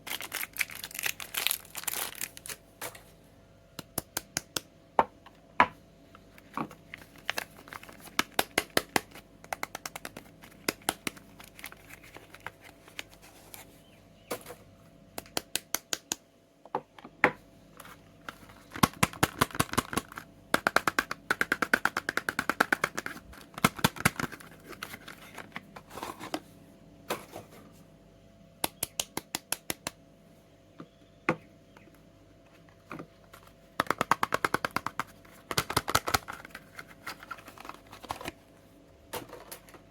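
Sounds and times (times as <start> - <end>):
packaging crinkling: 0.0 - 2.6, 6.7 - 13.6.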